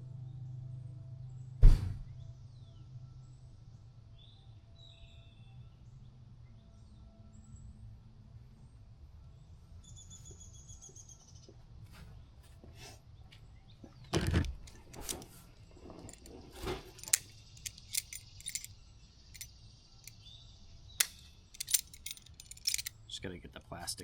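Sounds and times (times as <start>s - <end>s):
light clicks and clinks: 14.0s - 18.8s, 19.4s - 20.3s, 21.0s - 23.0s
objects knocking: 14.1s - 18.7s.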